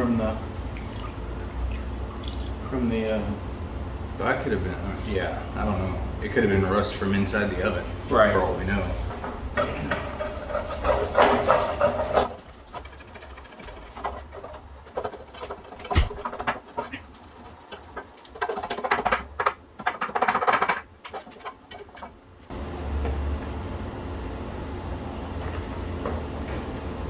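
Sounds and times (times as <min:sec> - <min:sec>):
scrubbing cast iron skillet: 0:07.9 - 0:18.8
sharp knock: 0:15.9 - 0:16.2.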